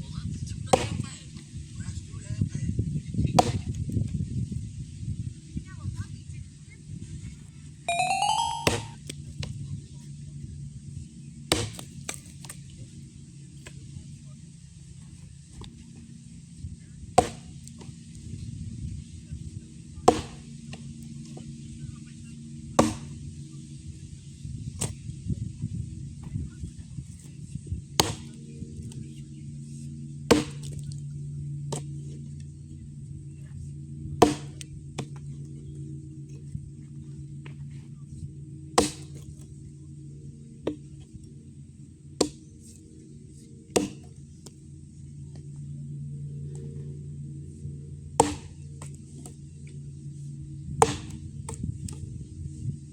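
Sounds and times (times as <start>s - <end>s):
axe chopping log: 0.8s - 1.0s, 3.4s - 3.8s, 11.5s - 12.3s, 17.2s - 17.5s, 20.1s - 20.4s, 22.8s - 23.1s, 28.0s - 28.4s, 30.3s - 30.9s, 34.2s - 35.1s, 38.8s - 39.4s, 42.2s - 42.4s, 43.8s - 44.1s, 48.2s - 48.5s, 50.8s - 52.0s
low steady hum: 5.6s - 52.9s.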